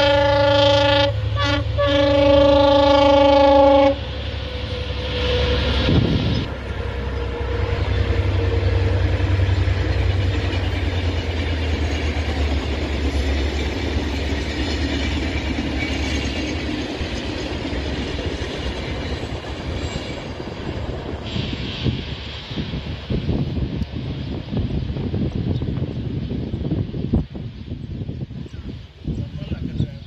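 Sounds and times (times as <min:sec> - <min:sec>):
train coaches running over rails: 0:00.0 - 0:29.8
locomotive engine rumble: 0:00.0 - 0:30.0.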